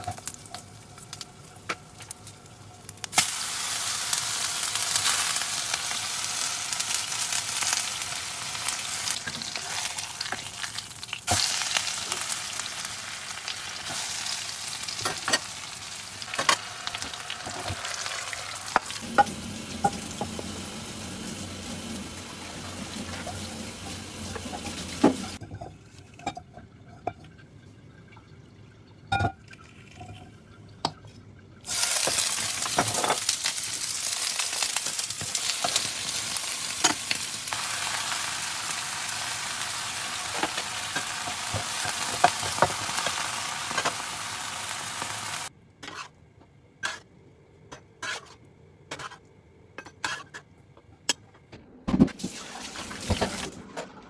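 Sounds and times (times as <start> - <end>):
food sizzling in a frying pan: 3.0 - 25.4, 31.6 - 45.5.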